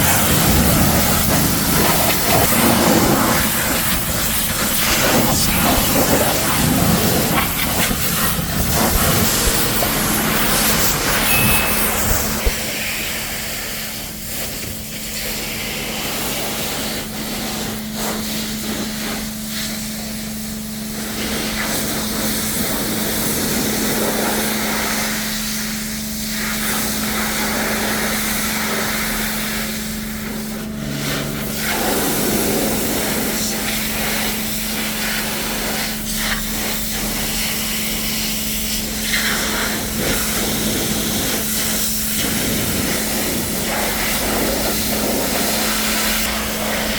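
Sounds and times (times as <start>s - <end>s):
pressure washer spray hissing: 0.0s - 46.9s
steady low hum: 0.0s - 46.9s.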